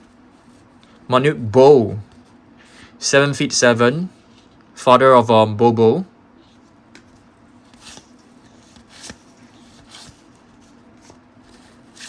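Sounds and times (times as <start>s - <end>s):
cardboard cards sliding: 7.6s - 12.0s.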